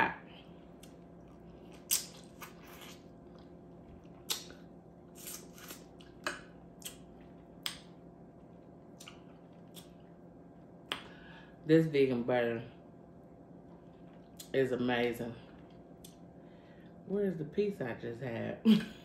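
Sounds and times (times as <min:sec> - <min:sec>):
person chewing and lip smacking: 0:00.4 - 0:10.2, 0:13.6 - 0:14.6, 0:15.5 - 0:16.2.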